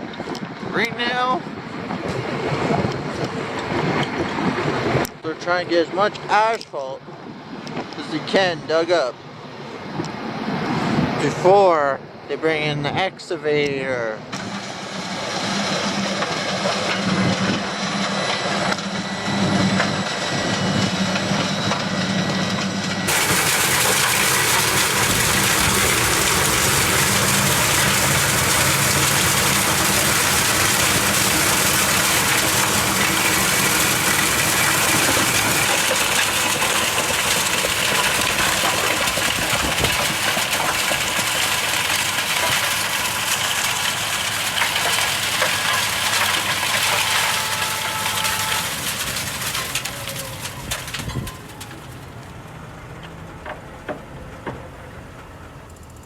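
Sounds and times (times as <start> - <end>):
diesel machinery running: 0.0 - 56.0
loud rushing noise: 23.0 - 50.9.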